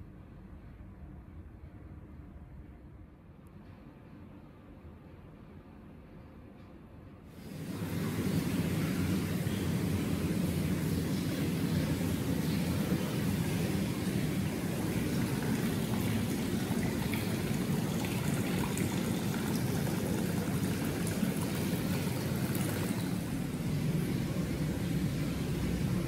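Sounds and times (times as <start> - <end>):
bath water flowing and churning: 7.4 - 26.0.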